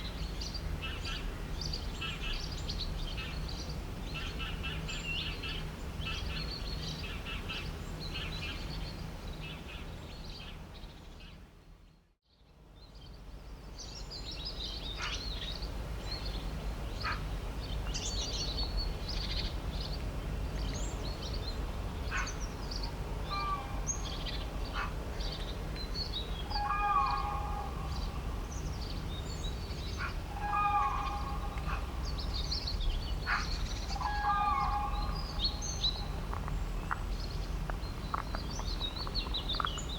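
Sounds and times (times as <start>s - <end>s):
low background rumble: 12.8s - 39.9s
birds chirping and singing: 20.6s - 39.9s
multi-tone bird call: 26.4s - 28.2s, 30.0s - 31.9s, 33.2s - 36.2s.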